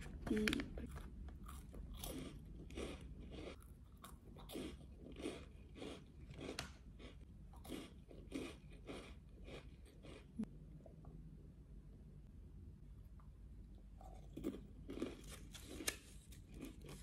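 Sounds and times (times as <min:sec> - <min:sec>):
crunchy cracker chewing: 0:00.5 - 0:10.3, 0:14.0 - 0:17.0.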